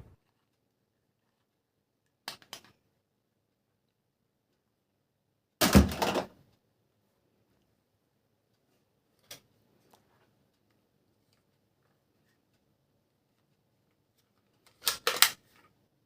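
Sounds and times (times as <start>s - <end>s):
plastic toy parts clicking: 2.2s - 2.8s, 14.6s - 15.6s.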